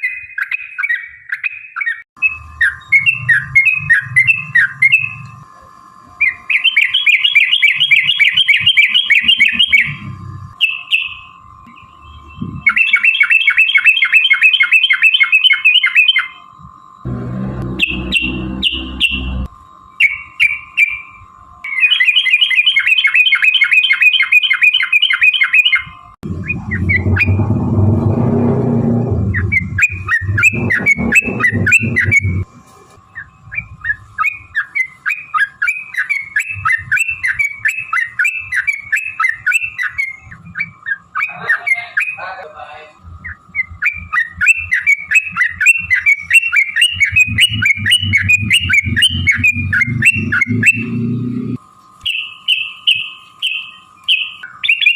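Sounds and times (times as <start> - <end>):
bird chirping song: 0.0 - 5.4, 6.2 - 16.4, 17.1 - 32.4, 33.1 - 42.3, 43.2 - 54.9
low rumbling: 9.8 - 10.6, 17.0 - 19.6, 26.2 - 32.5, 46.8 - 51.6.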